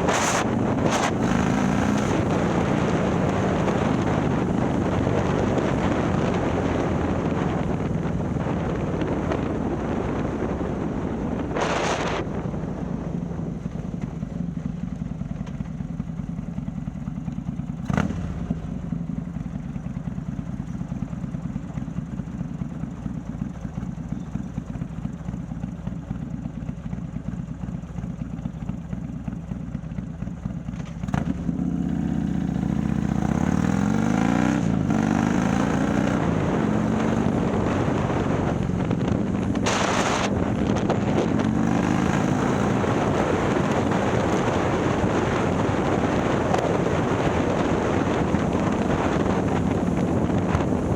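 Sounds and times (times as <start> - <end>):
wind rushing: 0.0 - 13.6, 33.0 - 50.9
motorcycle engine running: 0.0 - 50.9.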